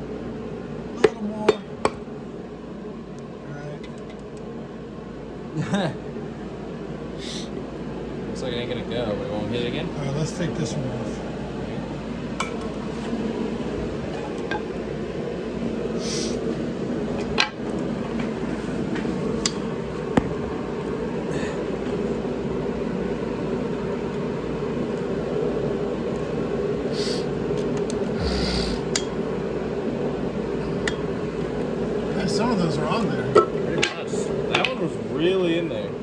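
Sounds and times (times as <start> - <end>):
steady hum: 28.1 - 29.4.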